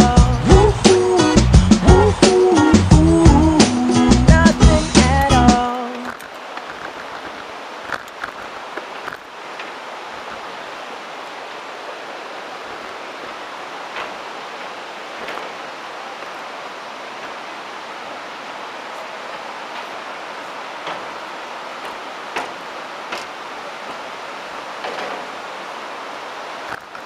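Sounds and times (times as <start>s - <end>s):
bike clicks and rattles: 5.2s - 9.7s
wind and tyre noise: 6.0s - 27.0s.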